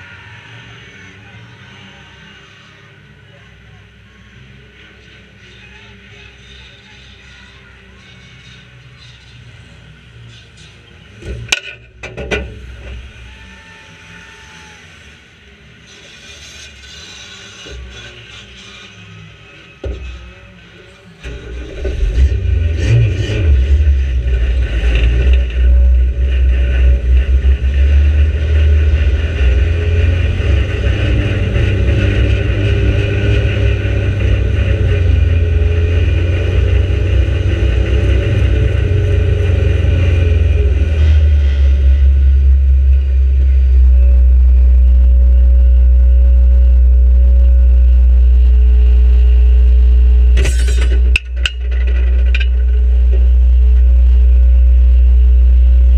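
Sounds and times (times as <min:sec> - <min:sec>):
car engine revving: 0:15.0 - 0:55.9
short clatter: 0:50.4 - 0:53.3.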